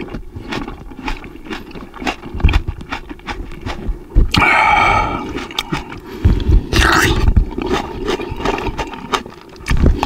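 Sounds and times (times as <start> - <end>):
wet mouth clicks: 0.0 - 6.0
close chewing: 0.0 - 10.0
loud bite: 0.5 - 6.0.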